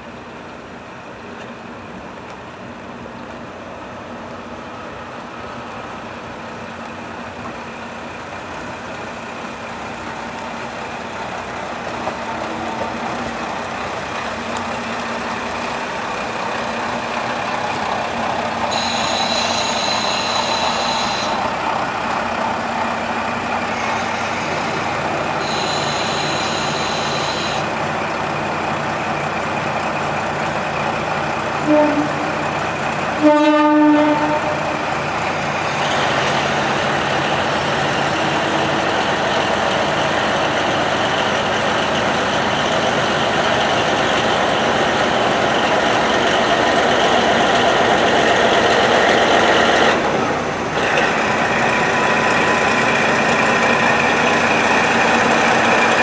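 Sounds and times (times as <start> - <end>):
diesel train running: 0.0 - 56.0
train horn: 18.7 - 21.4, 25.4 - 27.6, 31.6 - 32.5, 33.2 - 34.8.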